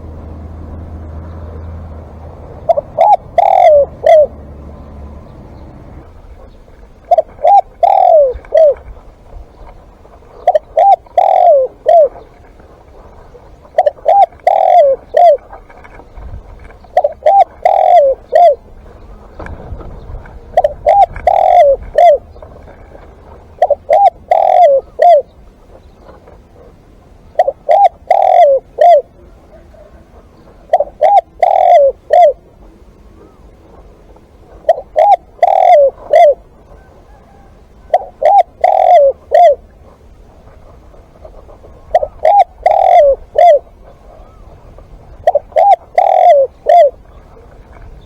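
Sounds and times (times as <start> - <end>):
dove cooing: 0.0 - 48.0.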